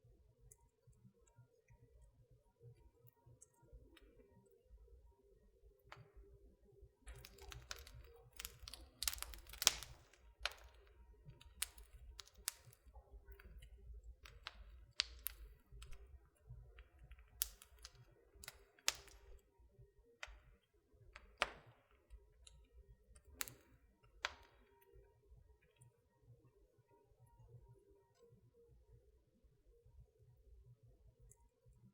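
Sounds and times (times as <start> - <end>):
wood fire crackling: 7.0 - 19.6, 20.2 - 25.1.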